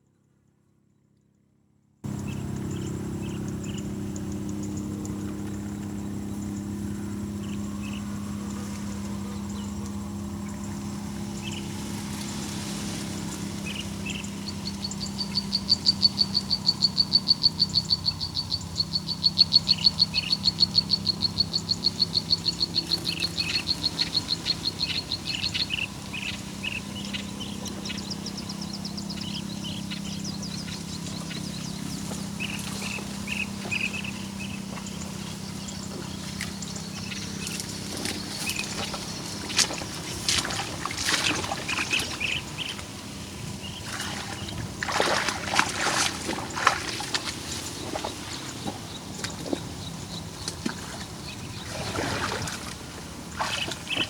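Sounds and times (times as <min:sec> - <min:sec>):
steady low hum: 0:02.0 - 0:54.0
nestling birds peeping: 0:02.1 - 0:54.0.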